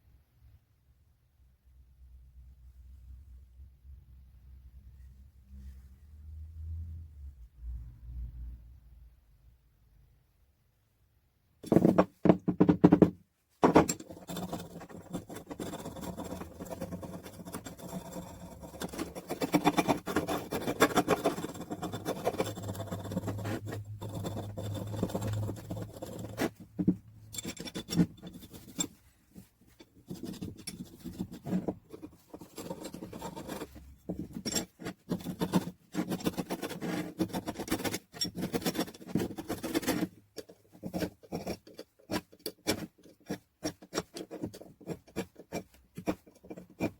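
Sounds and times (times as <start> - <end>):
hand scraping and rubbing metal: 11.6 - 46.9.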